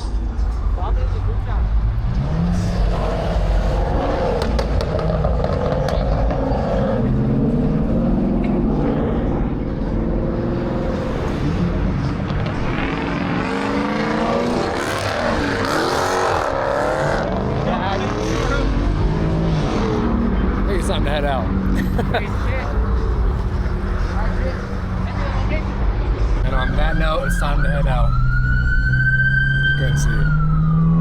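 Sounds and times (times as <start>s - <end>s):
car engines revving: 0.0s - 31.0s.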